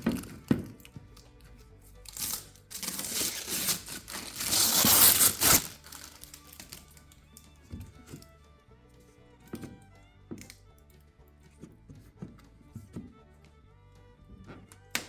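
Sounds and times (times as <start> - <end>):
quiet background music: 0.0 - 15.0
crinkling rustling handling noise: 2.1 - 7.2.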